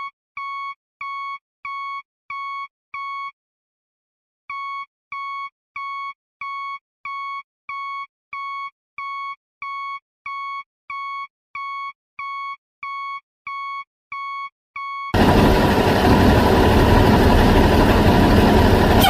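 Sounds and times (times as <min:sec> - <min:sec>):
vehicle reversing alarm beeping: 0:00.4 - 0:03.3, 0:04.5 - 0:15.4.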